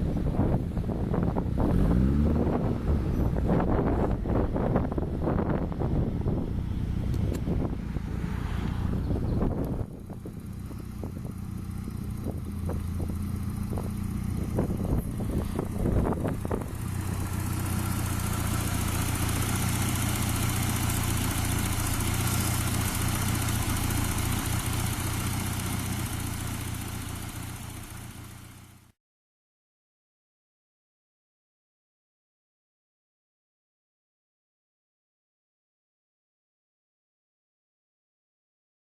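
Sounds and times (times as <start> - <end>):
car engine running: 0.0 - 28.9.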